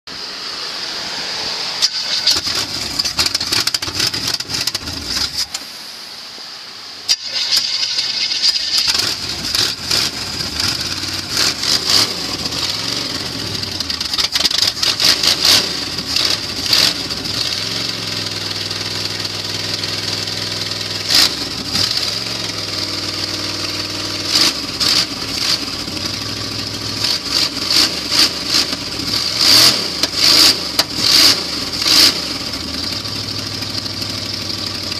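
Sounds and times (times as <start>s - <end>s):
engine idling unevenly: 0.1s - 27.7s, 28.4s - 34.9s
engine cranking: 1.8s - 5.7s, 7.1s - 17.8s
exhaust pops: 1.8s - 5.8s.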